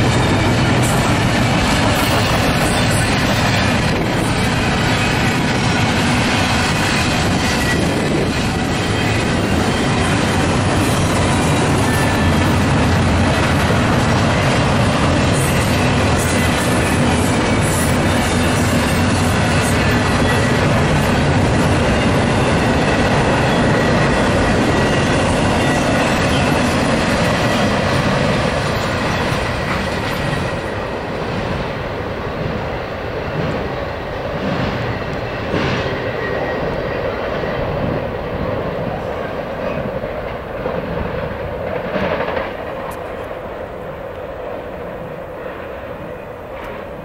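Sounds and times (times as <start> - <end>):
freight train wheels clattering: 0.0 - 47.0.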